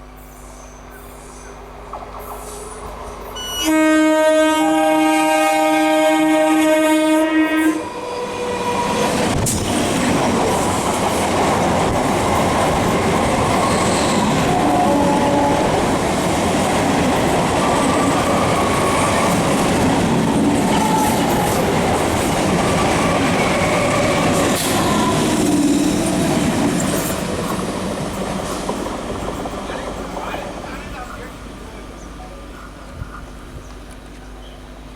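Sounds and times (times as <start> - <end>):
train rumbling past: 0.0 - 34.9
train horn: 3.4 - 9.4, 13.6 - 16.0, 20.6 - 21.8.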